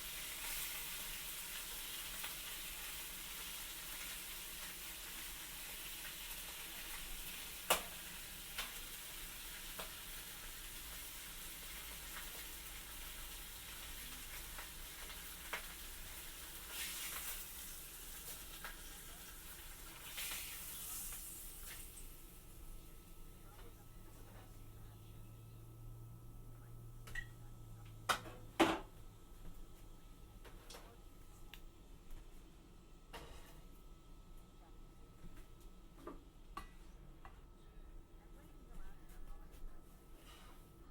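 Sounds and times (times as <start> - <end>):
food sizzling in a frying pan: 0.0 - 28.0.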